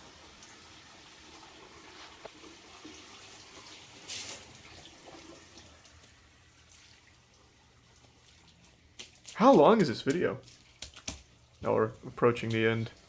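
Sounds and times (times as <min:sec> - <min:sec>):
running and splashing water: 0:00.0 - 0:13.0
water spraying: 0:01.8 - 0:05.6, 0:08.5 - 0:13.0.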